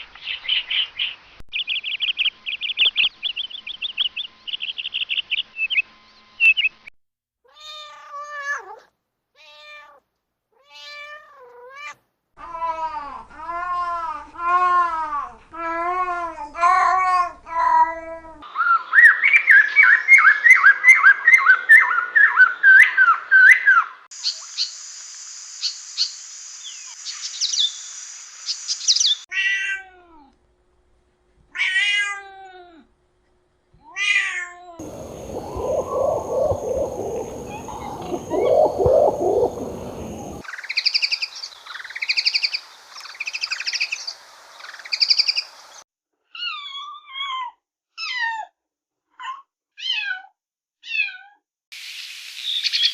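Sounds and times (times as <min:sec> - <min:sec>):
bird chirps and twitters: 0:00.2 - 0:06.8, 0:24.2 - 0:29.2, 0:34.8 - 0:45.5
low rough animal call: 0:34.8 - 0:40.4
bird two-part call: 0:34.8 - 0:44.1.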